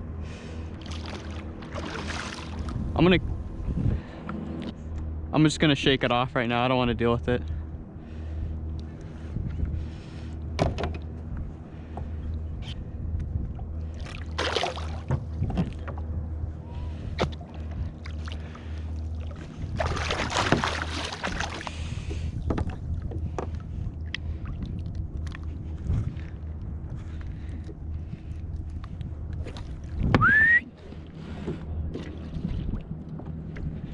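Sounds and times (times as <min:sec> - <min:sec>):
steady low hum: 0:00.0 - 0:33.9
water splashing: 0:00.8 - 0:02.9, 0:13.9 - 0:15.8, 0:17.2 - 0:22.8.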